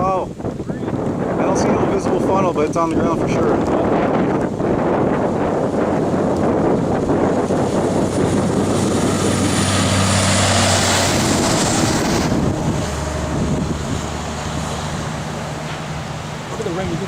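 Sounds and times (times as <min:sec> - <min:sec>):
wind buffeting microphone: 0:00.0 - 0:17.0
vehicle low hum: 0:04.8 - 0:17.0.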